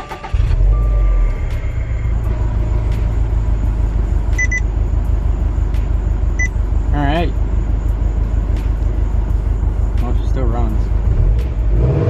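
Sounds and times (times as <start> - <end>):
car engine starting and idling: 0.0 - 12.0
short electronic beeps: 4.4 - 4.7, 6.4 - 6.6.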